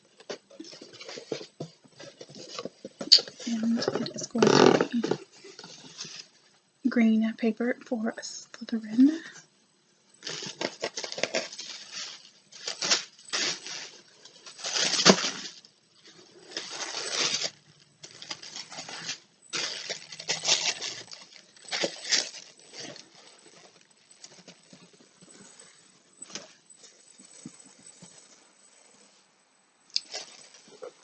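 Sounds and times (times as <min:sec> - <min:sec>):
tissue paper rustling: 0:10.2 - 0:29.1.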